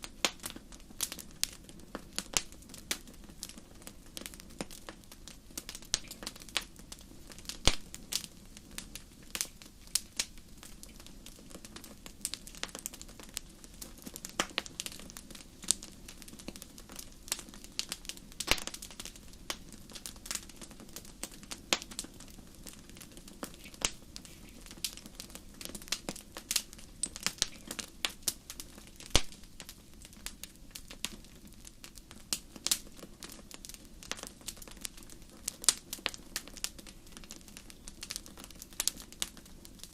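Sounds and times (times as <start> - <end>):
low steady hiss: 0.0 - 39.9
wood fire crackling: 0.0 - 39.9.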